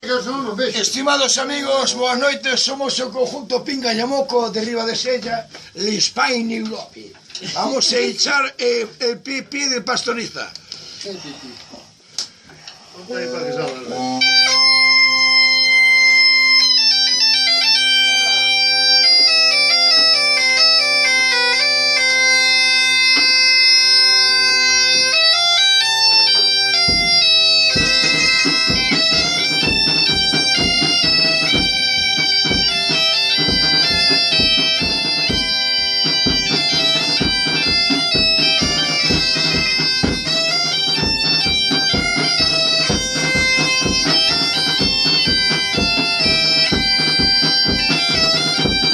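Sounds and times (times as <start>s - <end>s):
bagpipe folk tune with drone: 13.4s - 48.9s
drum beating steadily: 14.6s - 48.9s.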